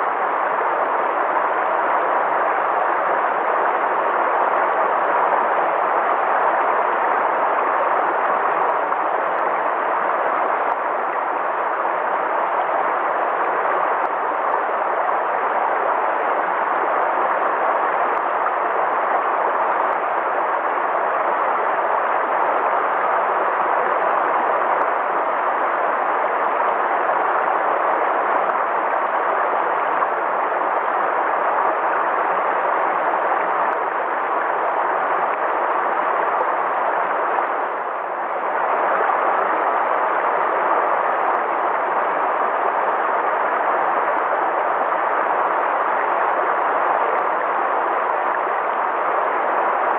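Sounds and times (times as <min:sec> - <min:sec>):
river water rushing: 0:00.0 - 0:49.9.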